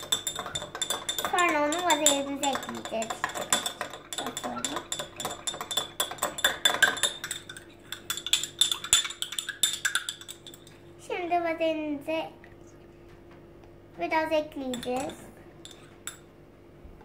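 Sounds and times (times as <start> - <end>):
spoon clinking in a bowl: 0.0 - 10.8, 14.7 - 16.3.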